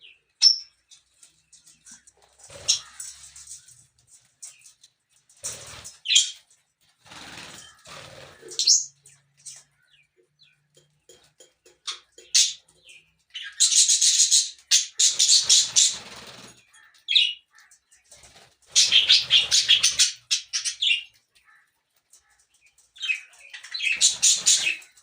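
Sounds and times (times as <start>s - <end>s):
parrots chirping and squawking: 0.0s - 25.0s
wing flapping: 7.0s - 8.8s, 15.2s - 16.6s.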